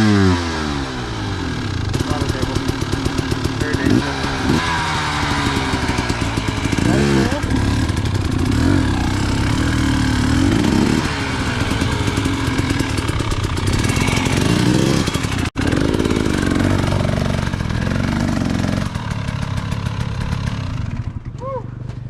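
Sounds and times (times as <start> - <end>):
dirt bike engine revving: 0.0 - 21.2.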